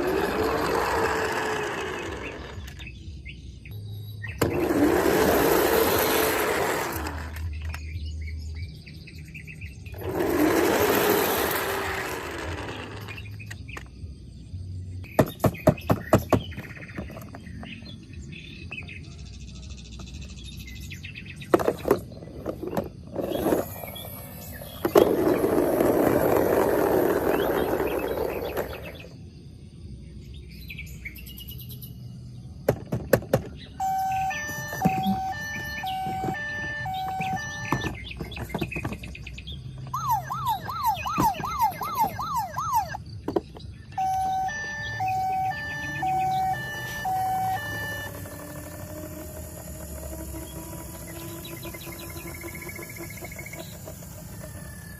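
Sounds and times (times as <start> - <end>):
two-tone toy siren beeping: 3.7 - 7.5, 23.2 - 29.0, 33.7 - 38.7, 39.8 - 43.1, 43.9 - 54.9
siren yelp: 33.8 - 38.0, 39.9 - 43.1, 43.9 - 48.6.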